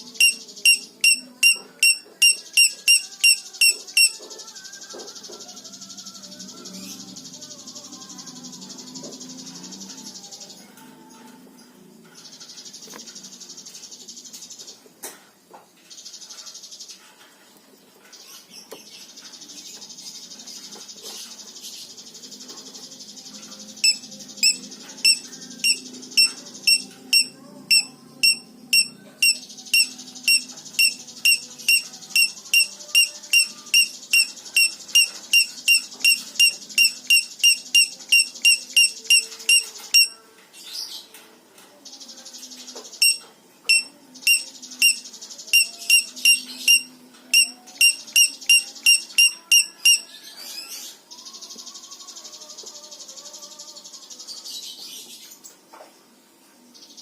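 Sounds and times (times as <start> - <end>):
high buzzing bird trill: 0.0 - 10.6, 19.1 - 40.2, 42.2 - 54.7.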